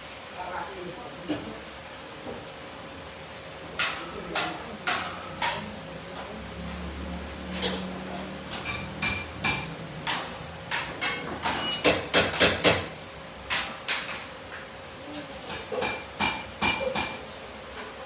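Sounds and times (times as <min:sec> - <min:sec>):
hammer striking metal: 0:07.6 - 0:12.9.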